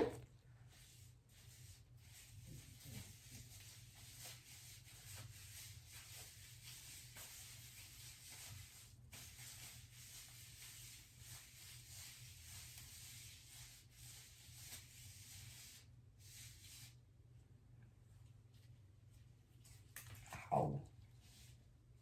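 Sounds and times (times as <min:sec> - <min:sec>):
steady hiss and low hum: 0:00.0 - 0:22.0
hands rubbing hair: 0:00.8 - 0:17.0.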